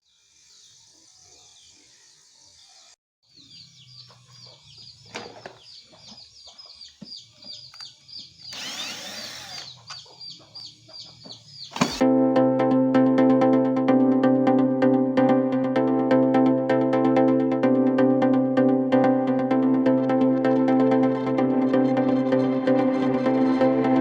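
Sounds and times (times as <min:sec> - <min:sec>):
short high chirping calls: 0:06.5 - 0:12.0.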